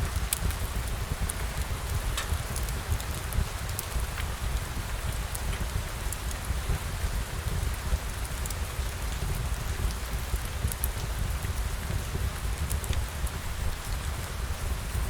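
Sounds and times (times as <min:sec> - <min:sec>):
steady rain falling: 0:00.0 - 0:15.0
small sharp ticks: 0:12.6 - 0:13.4.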